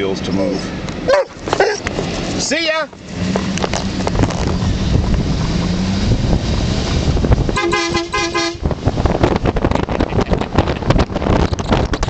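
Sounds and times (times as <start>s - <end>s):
pickup engine running: 0.8s - 12.0s
tyre and wind noise: 0.8s - 12.0s
car horn short toots: 7.6s - 8.7s.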